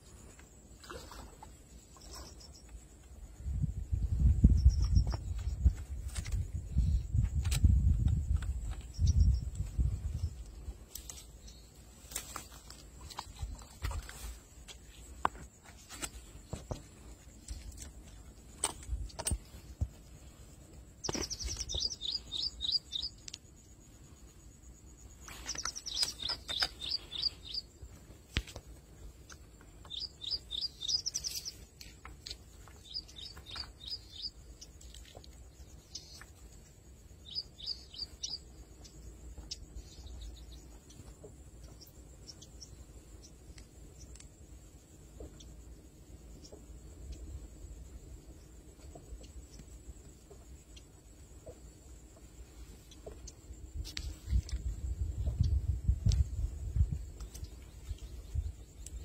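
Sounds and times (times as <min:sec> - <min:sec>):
bird singing high chirps: 0:21.0 - 0:23.2, 0:25.4 - 0:27.7, 0:29.9 - 0:31.6, 0:32.8 - 0:34.4, 0:37.2 - 0:38.4.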